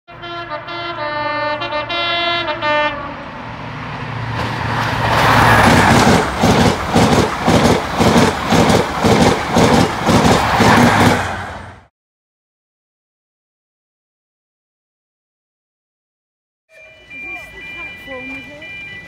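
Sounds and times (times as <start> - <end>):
two-tone train horn: 0.1 - 3.4
train engine and coaches passing: 0.1 - 11.9, 16.7 - 19.0.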